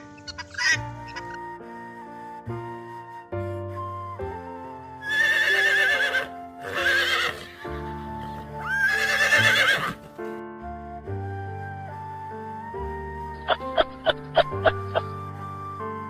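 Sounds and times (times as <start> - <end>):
background music: 0.0 - 16.0
horse whinnying: 5.0 - 10.1.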